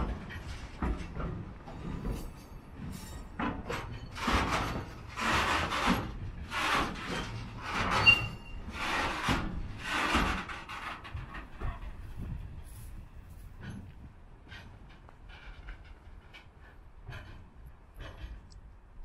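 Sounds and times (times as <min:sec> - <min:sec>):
freight wagons rolling past: 0:00.0 - 0:19.0
brake blocks scraping: 0:00.4 - 0:17.4
brake squeal: 0:06.5 - 0:09.2.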